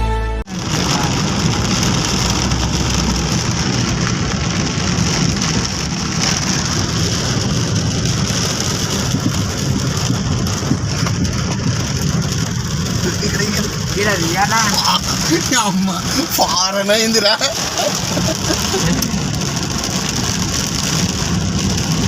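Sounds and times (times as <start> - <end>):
heavy rain pouring: 0.5 - 22.0.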